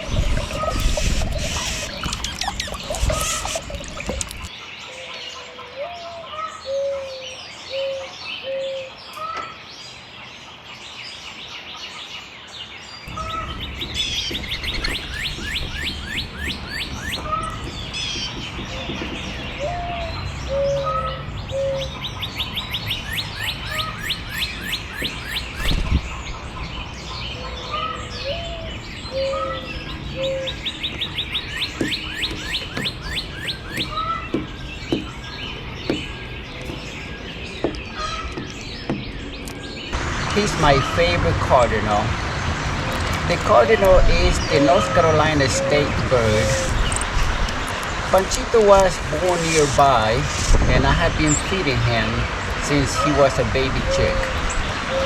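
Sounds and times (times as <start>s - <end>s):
songbirds chirping and singing: 0.0s - 55.0s
rushing noise: 39.9s - 55.0s.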